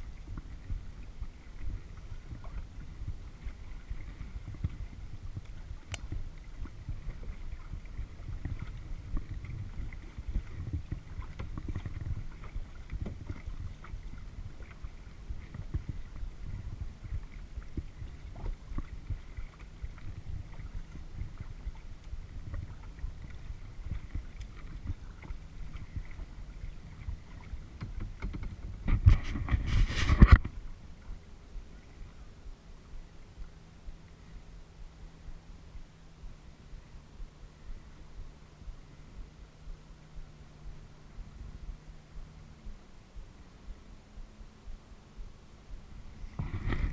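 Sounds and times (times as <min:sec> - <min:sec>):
paddle splashes: 0:00.0 - 0:35.2, 0:45.0 - 0:46.9
wind on camera: 0:00.0 - 0:46.9
water knocking against hull: 0:00.1 - 0:31.7, 0:45.7 - 0:46.9
rustling noise: 0:01.6 - 0:30.7, 0:46.1 - 0:46.9.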